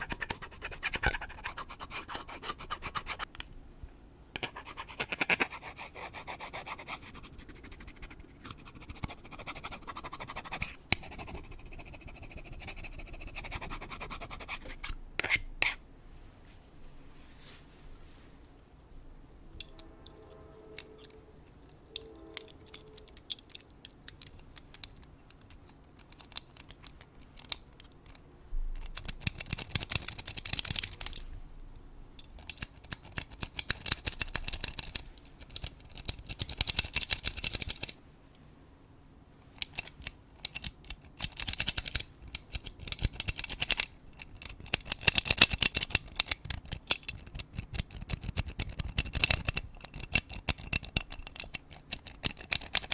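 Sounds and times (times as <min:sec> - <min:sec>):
crickets chirring: 0:00.0 - 0:52.9
crackly scratching and brushing: 0:13.0 - 0:18.7
sharp clicks: 0:39.6 - 0:52.9.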